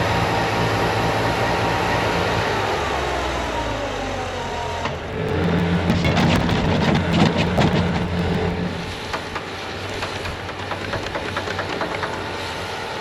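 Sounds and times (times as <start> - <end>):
diesel engine running: 0.0 - 9.4
rattling and clanking: 5.0 - 9.4.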